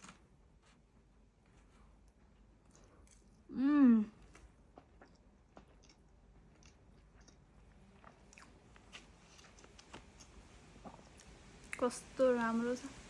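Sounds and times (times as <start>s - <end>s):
soft chewing with mouth clicks: 0.0s - 12.6s.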